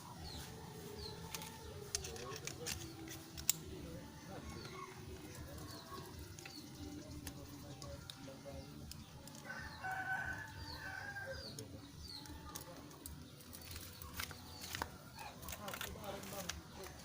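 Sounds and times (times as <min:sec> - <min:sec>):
small birds chirping: 0:00.0 - 0:17.0
rooster crowing: 0:09.4 - 0:11.4.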